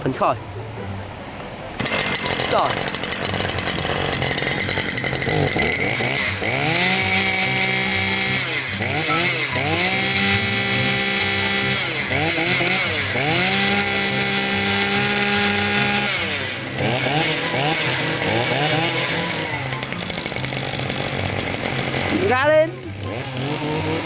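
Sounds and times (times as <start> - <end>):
brush cutter engine revving: 1.7 - 24.0.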